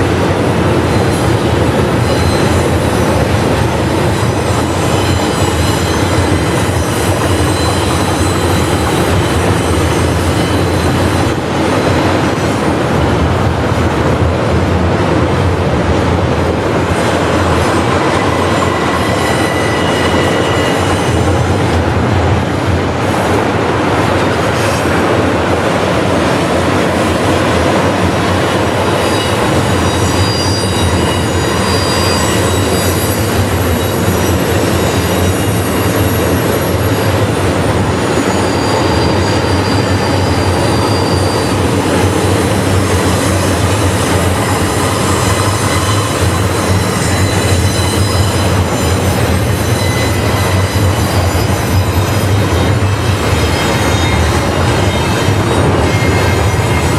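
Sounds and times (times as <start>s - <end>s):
train wheels rumbling on rails: 0.0s - 56.9s
high-pitched flange squeals: 17.8s - 21.4s, 28.9s - 37.2s, 38.1s - 56.9s.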